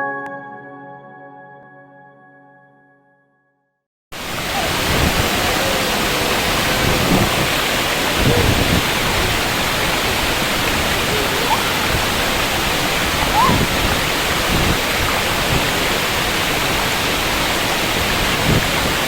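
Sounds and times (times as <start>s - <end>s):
waterfall rushing: 4.2s - 19.0s
faint voices: 4.4s - 13.9s.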